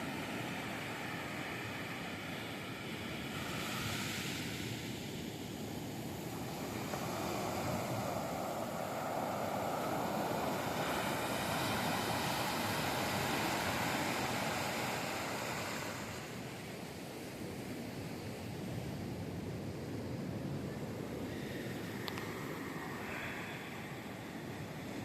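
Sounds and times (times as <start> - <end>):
surf breaking on beach: 0.0 - 17.5.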